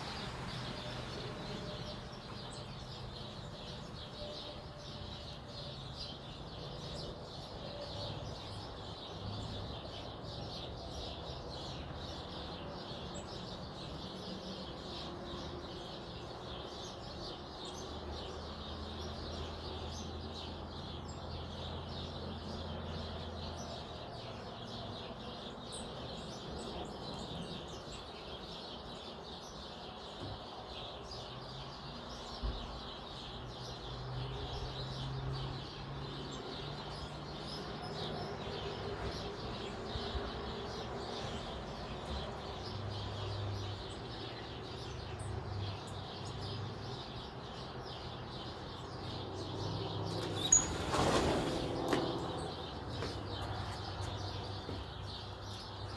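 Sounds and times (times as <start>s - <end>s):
birds chirping and calling: 0.0s - 55.9s.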